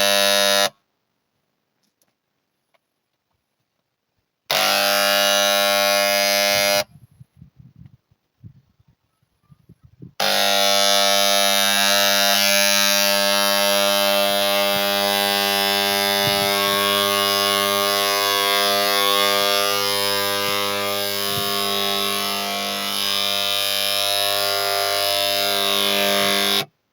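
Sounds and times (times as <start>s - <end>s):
electric machine buzzing: 0.0s - 0.8s, 4.5s - 7.0s, 10.1s - 26.8s.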